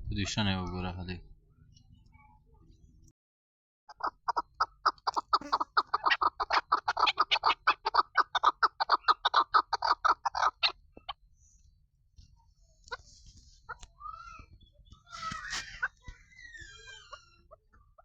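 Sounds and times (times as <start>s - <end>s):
partridge clucking: 3.9s - 11.2s.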